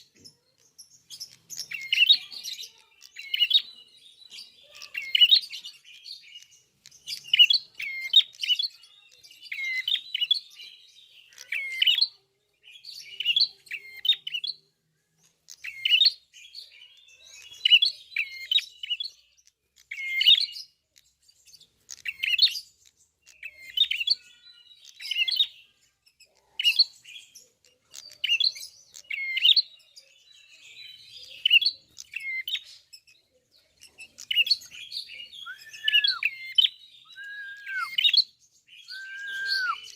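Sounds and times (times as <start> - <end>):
bird chirping sharp notes: 34.0 - 39.9.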